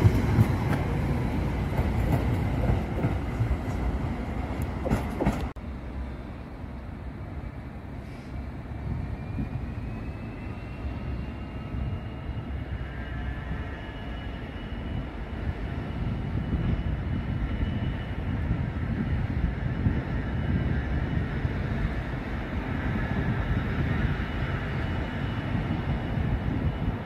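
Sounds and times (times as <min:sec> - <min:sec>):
train rumbling with clicks: 0:00.0 - 0:05.7.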